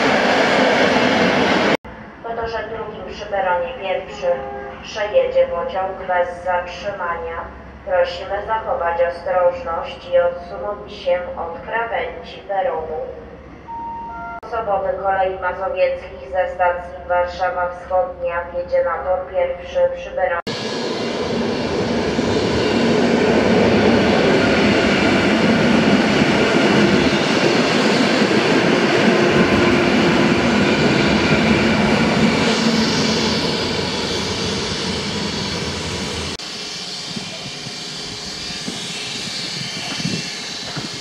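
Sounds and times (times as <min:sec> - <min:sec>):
station background: 0:00.0 - 0:22.0
train motors and wheels running: 0:20.5 - 0:41.0.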